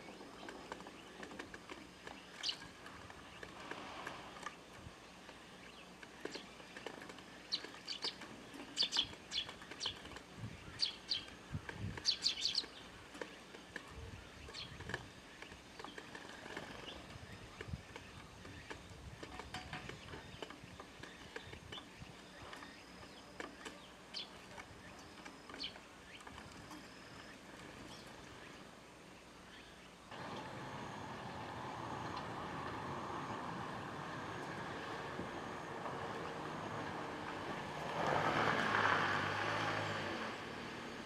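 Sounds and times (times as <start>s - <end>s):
sparrows chirping: 0.0s - 30.0s.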